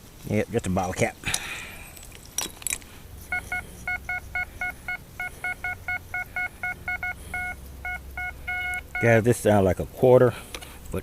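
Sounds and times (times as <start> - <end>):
metal detector short beeps: 3.3 - 9.2.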